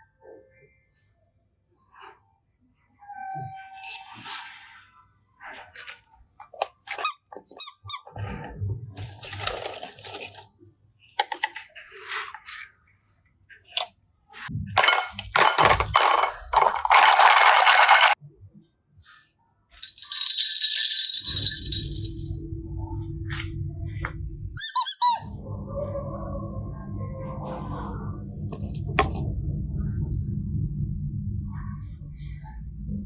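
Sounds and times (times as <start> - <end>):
bright ringing sound: 19.8 - 22.2.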